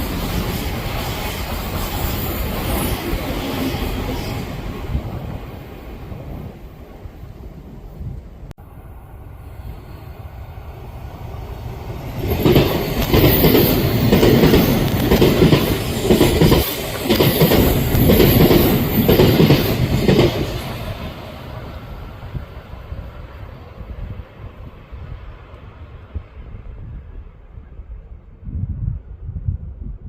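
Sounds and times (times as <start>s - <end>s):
electric train wheels clattering: 11.3s - 22.1s.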